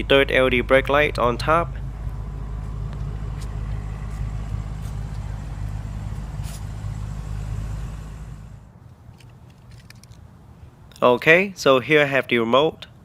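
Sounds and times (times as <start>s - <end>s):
vehicle engine idling: 0.0s - 9.5s.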